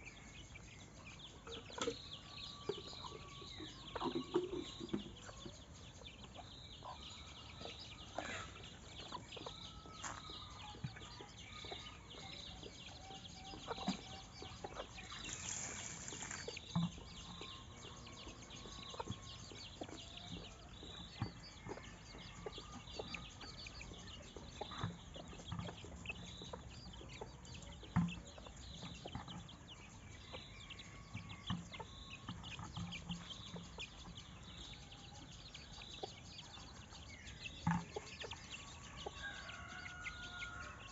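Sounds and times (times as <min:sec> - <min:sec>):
bird calls: 0:00.0 - 0:40.9
chickens clucking: 0:00.0 - 0:40.9.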